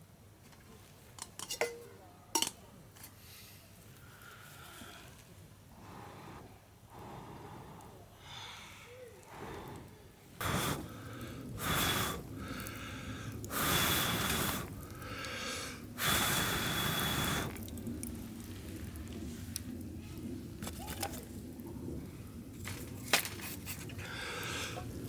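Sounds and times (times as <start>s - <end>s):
person blowing breathy puffs: 5.8s - 17.6s.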